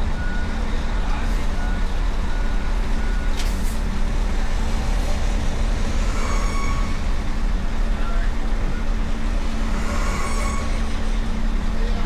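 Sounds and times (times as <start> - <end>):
truck engines rumbling: 0.0 - 12.0.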